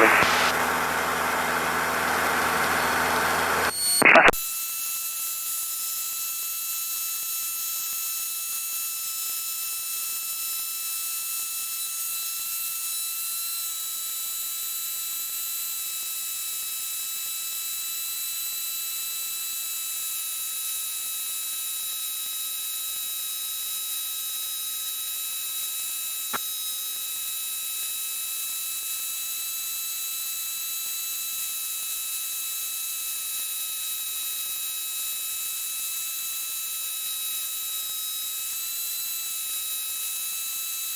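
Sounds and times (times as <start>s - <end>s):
electronic hiss: 0.0s - 2.6s
faint steady whine: 0.0s - 4.4s.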